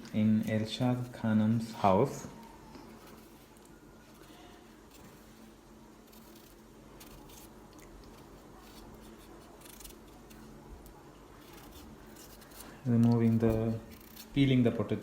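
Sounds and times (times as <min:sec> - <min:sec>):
low steady hum: 0:00.0 - 0:15.0
knife scraping potato: 0:02.9 - 0:10.6, 0:11.4 - 0:14.6.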